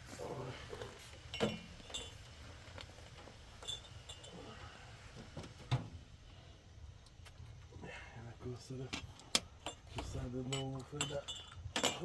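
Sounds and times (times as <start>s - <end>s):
light knocks and clinks: 1.3s - 2.3s, 3.6s - 4.4s, 8.9s - 12.0s.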